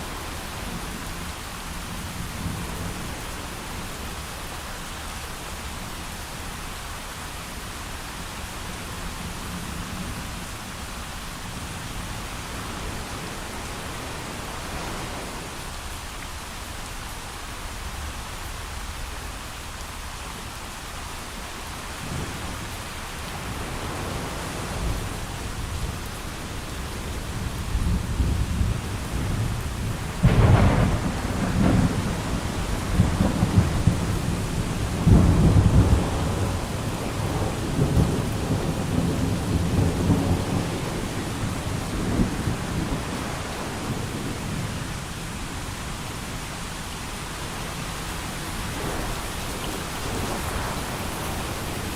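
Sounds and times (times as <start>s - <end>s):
rain falling: 0.0s - 51.9s
thunder rolling: 27.8s - 44.1s, 48.1s - 51.9s
sharp thunder crack: 30.2s - 34.1s.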